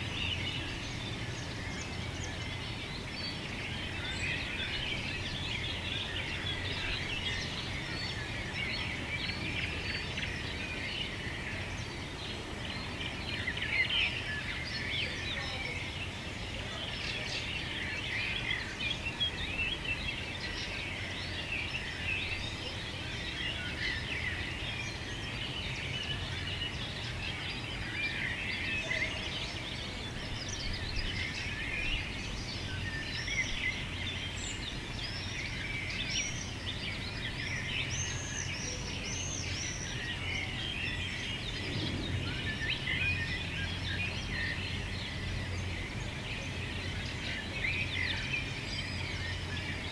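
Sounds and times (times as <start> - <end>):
small birds singing and chirping: 0.0 - 49.9
steady low rumble: 41.4 - 46.1.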